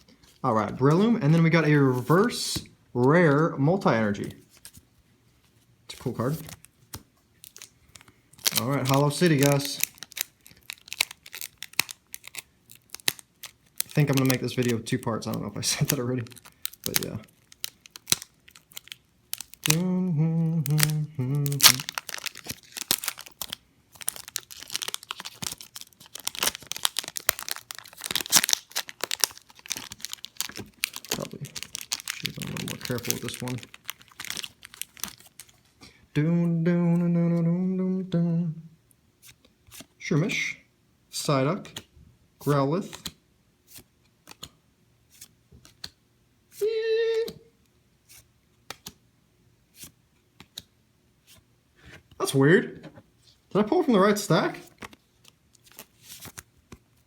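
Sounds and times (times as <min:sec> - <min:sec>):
foil wrapper crinkling and tearing: 0:07.4 - 0:19.9, 0:20.6 - 0:35.7
trading cards clicking and snapping: 0:44.2 - 0:44.6, 0:45.2 - 0:46.0, 0:48.7 - 0:49.0.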